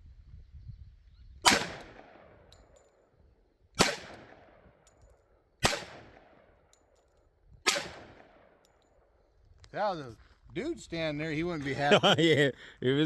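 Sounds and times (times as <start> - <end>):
handgun shots echoing: 1.5 - 2.8, 3.8 - 4.9, 5.6 - 6.6, 7.7 - 8.7.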